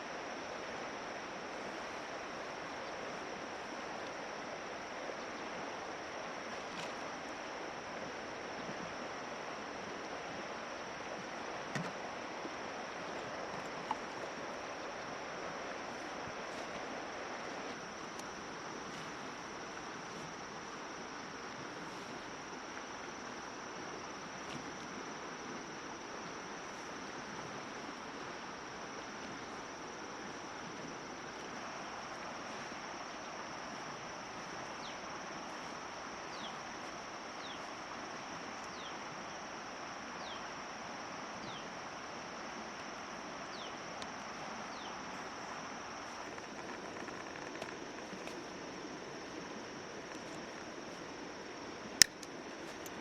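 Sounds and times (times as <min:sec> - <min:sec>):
crickets trilling: 0:00.0 - 0:53.0.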